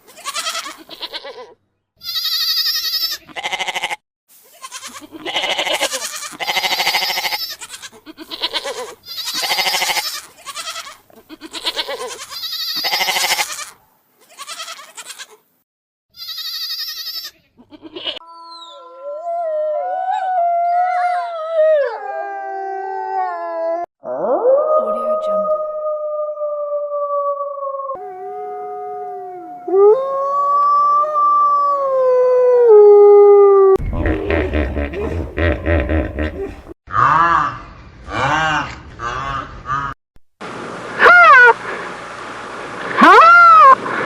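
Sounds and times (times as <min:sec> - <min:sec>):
farm animals bleating: 0:00.1 - 0:15.4, 0:16.1 - 0:18.2.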